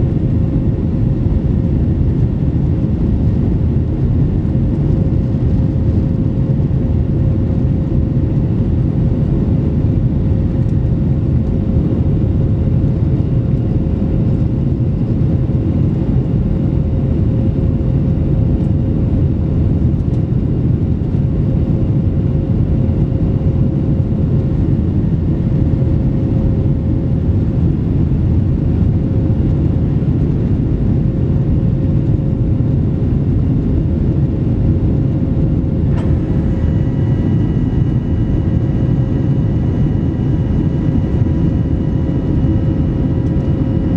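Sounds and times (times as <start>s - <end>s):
jet engine roar in cabin: 0.0s - 43.9s
steady hum-like tone: 32.4s - 43.9s.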